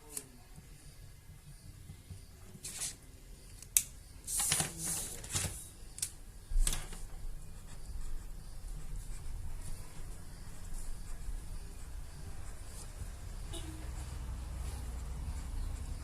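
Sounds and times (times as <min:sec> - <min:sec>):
pen scratching on paper: 0:07.0 - 0:16.0.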